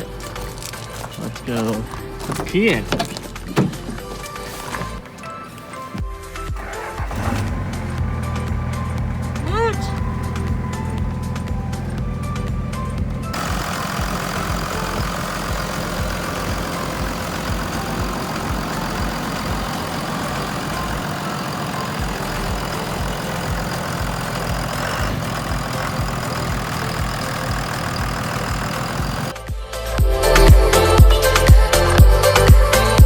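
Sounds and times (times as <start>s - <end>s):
diesel engine idling: 0.0s - 29.4s.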